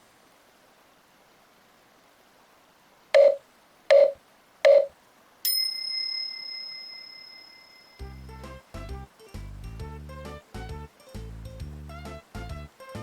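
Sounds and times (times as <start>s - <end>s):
short beeps: 3.2s - 4.9s
high ringing chime: 5.5s - 8.1s.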